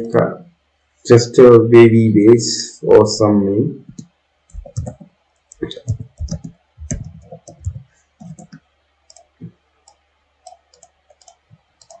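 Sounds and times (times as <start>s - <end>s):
soft low thumps: 3.9s - 8.6s
mouse and keyboard clicks: 3.9s - 9.3s, 9.9s - 12.0s.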